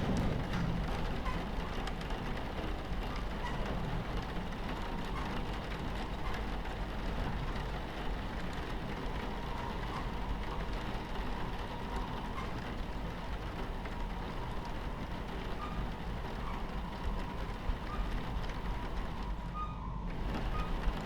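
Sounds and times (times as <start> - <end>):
rain pattering on window: 0.0 - 21.0
train rumbling on tracks: 0.0 - 21.0.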